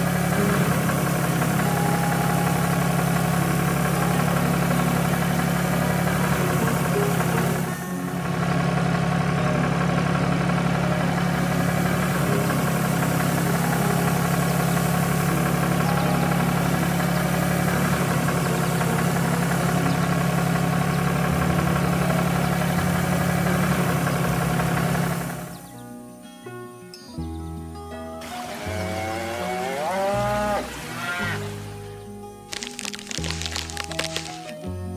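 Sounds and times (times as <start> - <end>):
heavy vehicle engine idling: 0.0 - 25.8.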